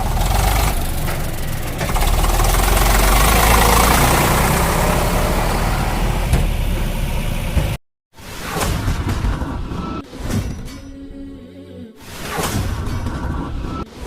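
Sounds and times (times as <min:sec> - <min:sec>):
heavy diesel engine running: 0:00.0 - 0:07.8.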